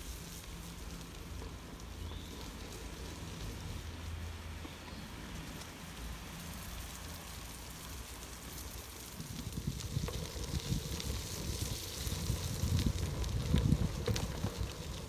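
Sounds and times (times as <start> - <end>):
wind rumble on microphone: 7.8 - 15.0
bike tyres crunching on gravel: 8.7 - 15.0.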